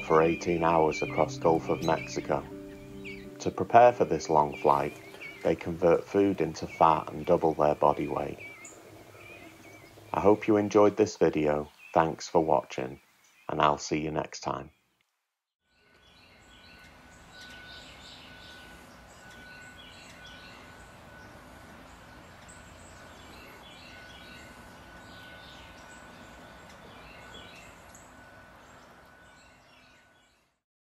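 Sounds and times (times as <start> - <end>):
bird chirps: 0.0 - 10.4, 15.6 - 30.5
thin high tone: 0.0 - 10.4.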